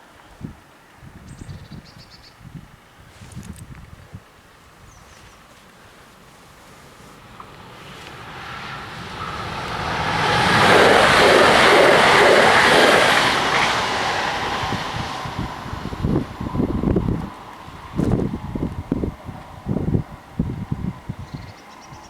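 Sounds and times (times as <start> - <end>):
train rumbling over crossing: 6.5 - 22.0.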